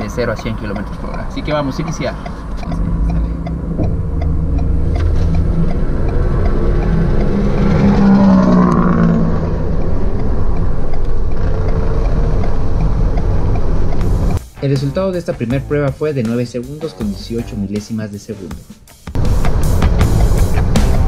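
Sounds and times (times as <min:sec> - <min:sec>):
car engine accelerating: 0:00.0 - 0:14.4, 0:19.2 - 0:21.0.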